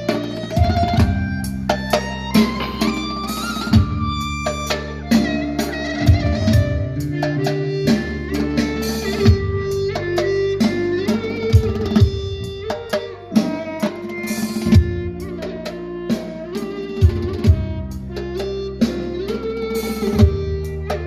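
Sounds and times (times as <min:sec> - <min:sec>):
programmed drum beat: 0:00.0 - 0:21.0
synthesizer lead melody: 0:00.0 - 0:21.0.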